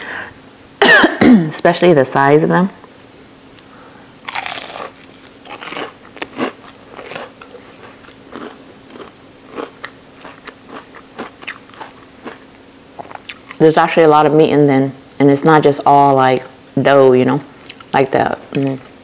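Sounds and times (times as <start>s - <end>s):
crunching fried shrimp: 4.2s - 13.6s.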